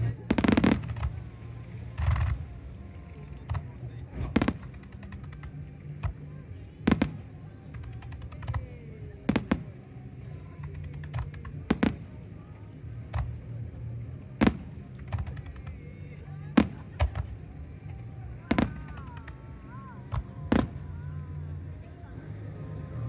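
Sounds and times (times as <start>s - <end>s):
fireworks bangs: 0.0s - 2.6s, 3.5s - 6.2s, 6.8s - 8.6s, 9.2s - 12.5s, 14.4s - 15.8s, 16.5s - 19.4s, 20.1s - 21.2s
fireworks pops and crackling: 0.0s - 21.5s.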